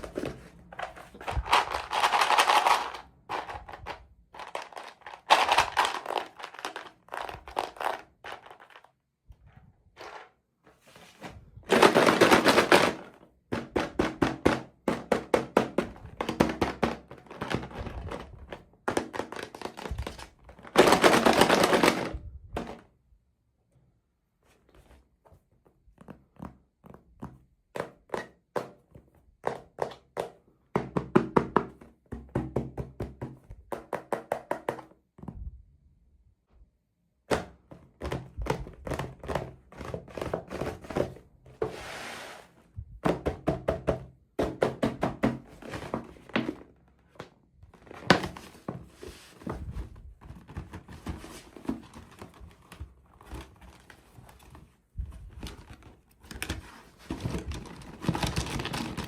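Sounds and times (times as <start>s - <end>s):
plastic toys clicking and tapping: 1.0s - 9.0s, 57.2s - 59.0s.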